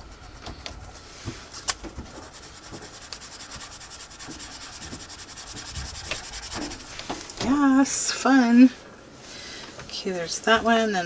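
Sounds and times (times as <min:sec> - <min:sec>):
paintbrush bristles scrubbing: 0:02.1 - 0:07.1.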